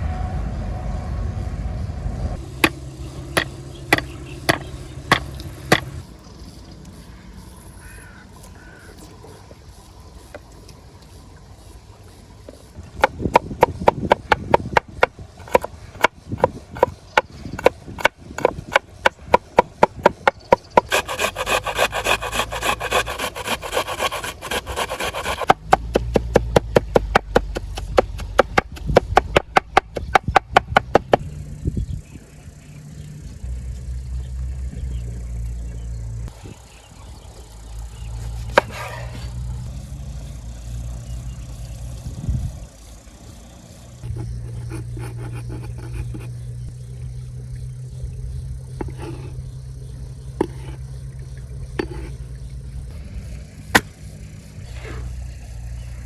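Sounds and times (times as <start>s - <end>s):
knife chopping on wooden board: 3.4s - 5.9s, 13.0s - 31.2s
knife scraping strokes: 15.4s - 16.9s, 20.0s - 29.0s, 38.2s - 39.4s, 44.0s - 46.4s, 48.8s - 49.4s, 50.4s - 50.8s, 51.8s - 52.2s.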